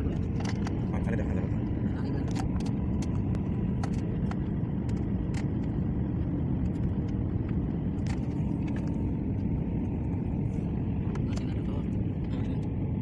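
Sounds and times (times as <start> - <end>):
airliner cabin rumble: 0.0 - 13.0
sharp clicks and rattles: 0.2 - 5.8, 6.5 - 9.5.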